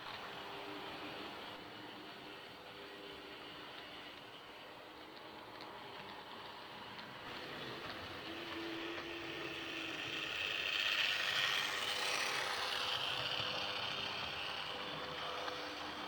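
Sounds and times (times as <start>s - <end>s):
faint clicks of wheels: 0.0s - 16.0s
model train running on track: 0.0s - 16.0s.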